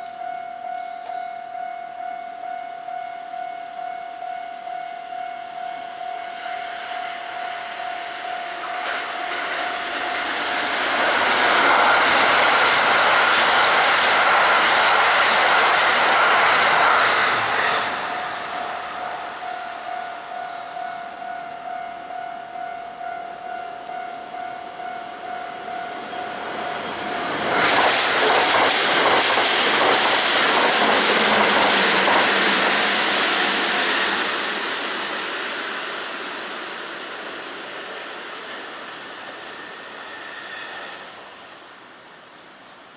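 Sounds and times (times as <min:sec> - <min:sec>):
steady ringing tone: 0:00.0 - 0:10.2, 0:18.1 - 0:27.3
electric trains passing: 0:01.0 - 0:42.9.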